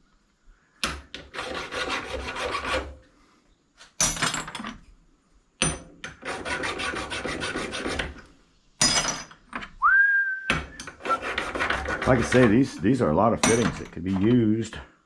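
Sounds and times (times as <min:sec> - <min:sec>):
metal tool scraping brass: 0:10.8 - 0:12.8.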